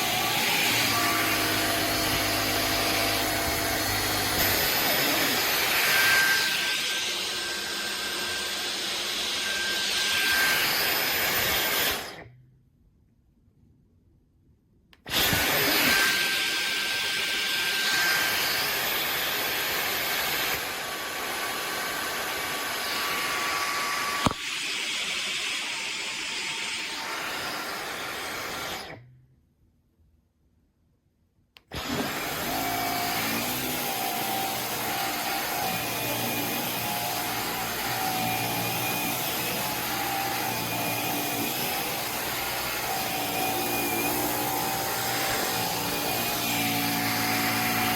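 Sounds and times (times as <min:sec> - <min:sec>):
cordless vacuum running: 0:00.0 - 0:12.2, 0:15.0 - 0:29.0, 0:31.7 - 0:47.9.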